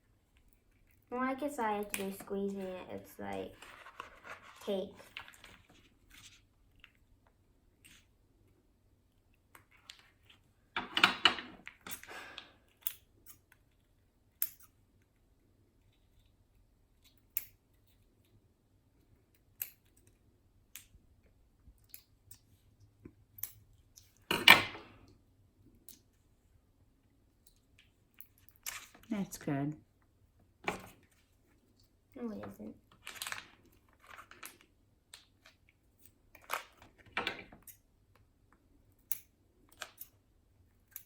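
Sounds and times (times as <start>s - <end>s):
plastic crinkling: 32.9s - 34.7s.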